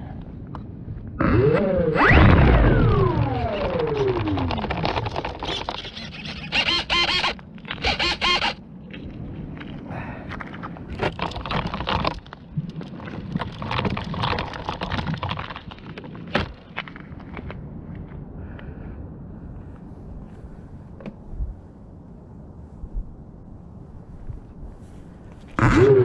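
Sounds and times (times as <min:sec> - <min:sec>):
electric model airplane motor whining: 0:01.2 - 0:08.6, 0:25.6 - 0:26.0
model airplane crashing: 0:01.2 - 0:08.6, 0:25.6 - 0:26.0.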